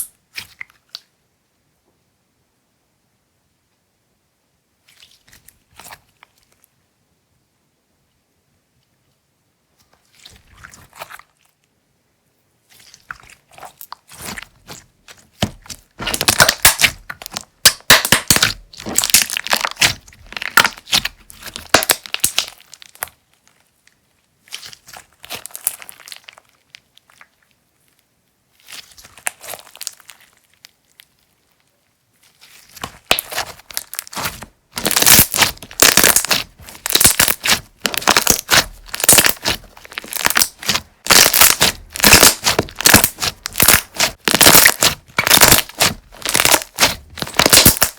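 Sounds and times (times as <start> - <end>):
slime squeezed by hand crackling: 12.8 - 23.2, 32.2 - 47.9.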